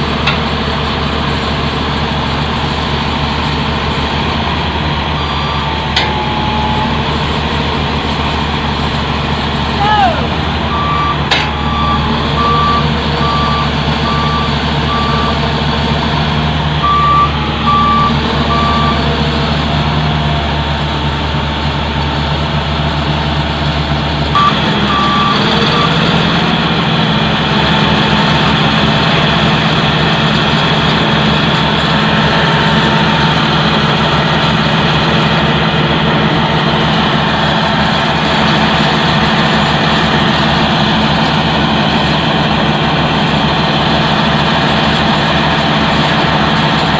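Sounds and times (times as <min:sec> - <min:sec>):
diesel engine running: 0:00.0 - 0:46.9
reversing alarm beeping: 0:05.1 - 0:07.2, 0:10.0 - 0:15.5, 0:16.8 - 0:19.1, 0:24.3 - 0:26.2.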